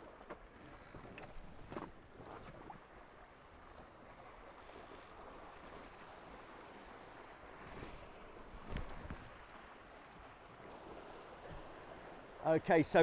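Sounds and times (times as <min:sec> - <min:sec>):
wind and water rushing: 0:05.2 - 0:13.0.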